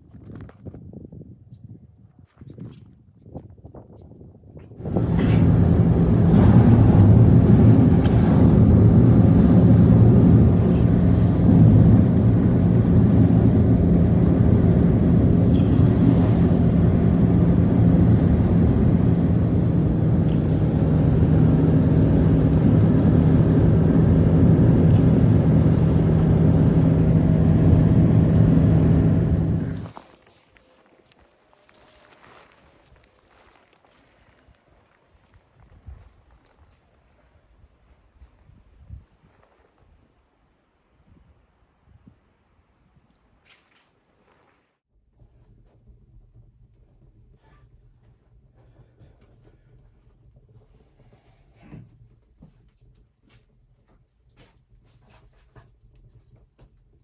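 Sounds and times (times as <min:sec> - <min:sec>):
motor humming: 0:04.8 - 0:29.9.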